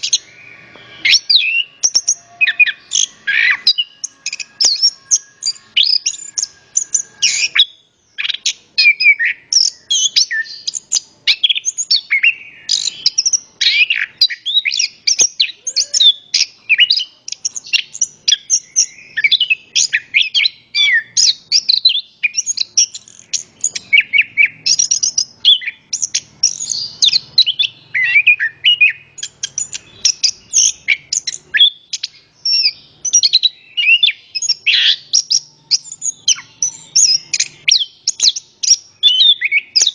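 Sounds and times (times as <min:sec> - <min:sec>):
thrush singing: 0:00.0 - 0:21.5.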